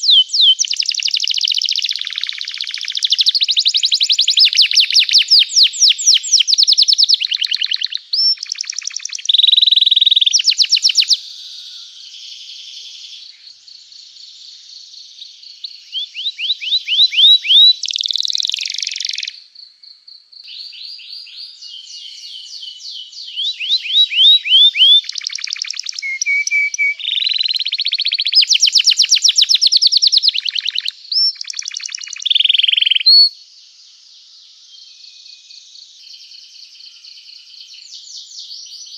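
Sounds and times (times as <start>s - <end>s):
canary singing trills: 0.0s - 19.4s, 20.4s - 33.4s.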